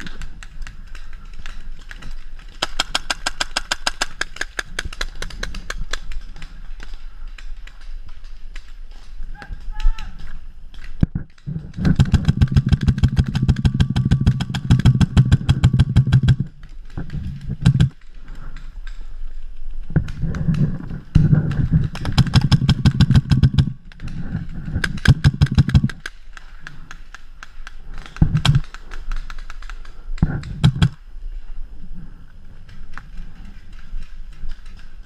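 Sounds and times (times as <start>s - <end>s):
paintball marker firing bursts: 11.8s - 16.5s, 21.9s - 23.7s, 24.8s - 26.1s.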